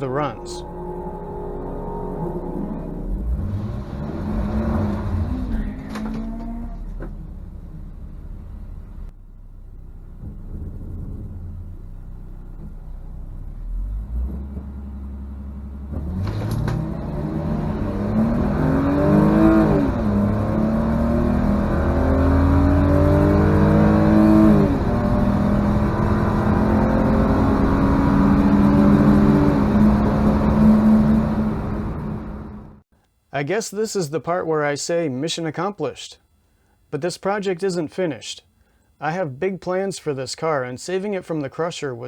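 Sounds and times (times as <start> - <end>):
car engine revving through gears: 0.1 - 8.5, 12.5 - 32.8.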